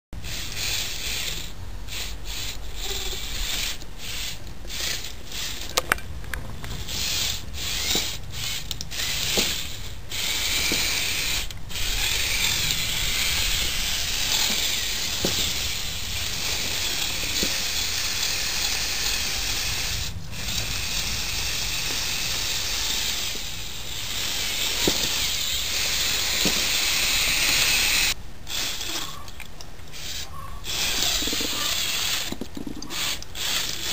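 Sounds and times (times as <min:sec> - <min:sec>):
toy electric motors running: 0:00.2 - 0:05.9, 0:06.6 - 0:33.9.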